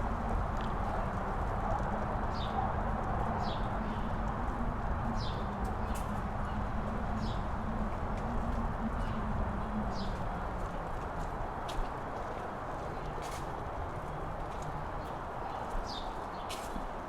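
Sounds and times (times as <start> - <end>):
wind blowing across microphone: 0.0 - 17.0.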